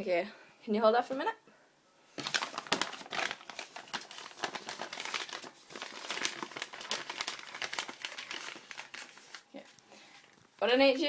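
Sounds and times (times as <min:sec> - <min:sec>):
crinkling and rustling: 0:02.2 - 0:10.7.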